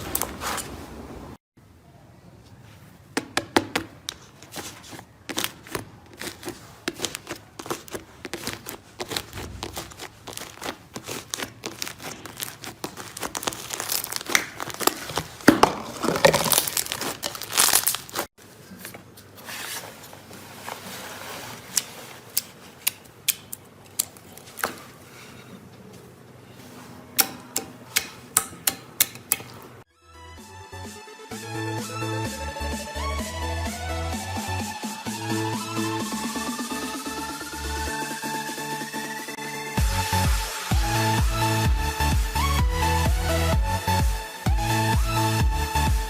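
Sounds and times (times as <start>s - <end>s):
slime squished by hand: 4.2s - 18.3s.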